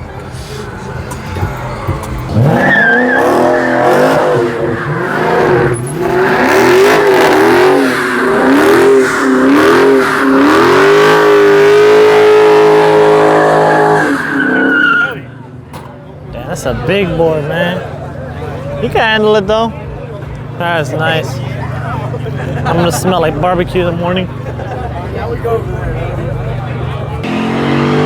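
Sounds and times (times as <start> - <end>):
car engine revving: 0.0 - 15.5, 21.4 - 28.0.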